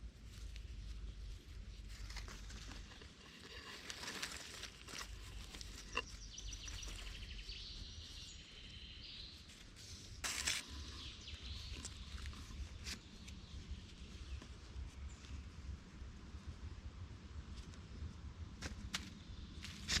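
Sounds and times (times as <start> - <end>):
rustle: 0.0 - 20.0
small clicks and crackles: 0.2 - 8.7.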